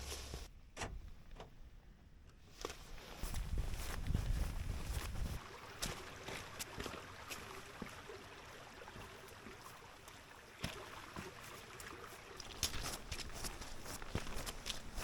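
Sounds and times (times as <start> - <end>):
mountain stream trickling: 3.8 - 15.0.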